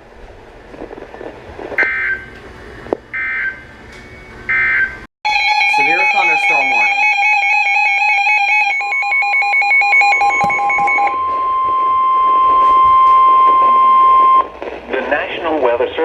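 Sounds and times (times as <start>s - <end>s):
fast-pulsing alarm beep: 1.8s - 2.3s, 4.5s - 14.5s
steady alarm tone: 1.8s - 2.4s, 3.1s - 3.7s, 4.5s - 14.5s.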